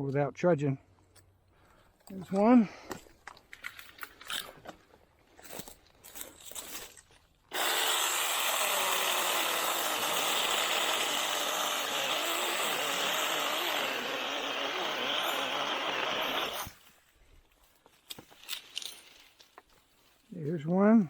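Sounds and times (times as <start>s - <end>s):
mini chainsaw cutting wood: 7.5s - 16.8s.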